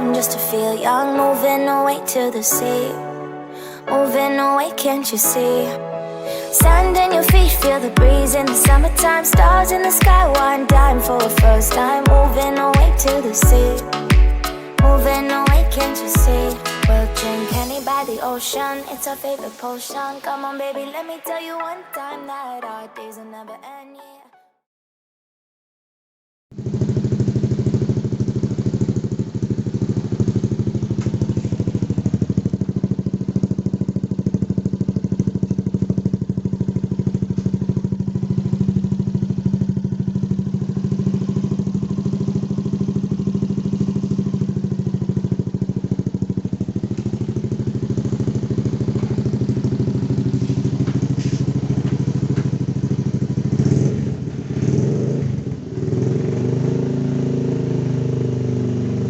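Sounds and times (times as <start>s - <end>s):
motorcycle engine idling: 6.6s - 17.8s, 26.6s - 59.0s.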